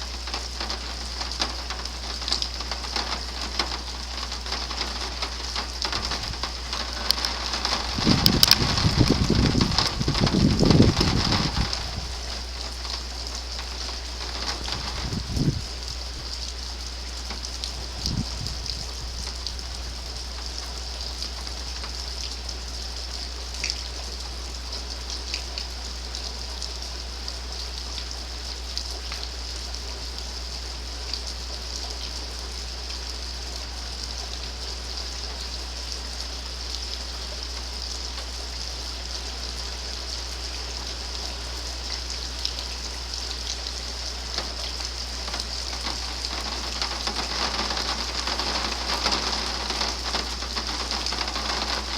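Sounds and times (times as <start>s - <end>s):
individual raindrop hits: 0.0s - 23.0s, 40.3s - 51.9s
steady rain hissing: 0.0s - 51.9s.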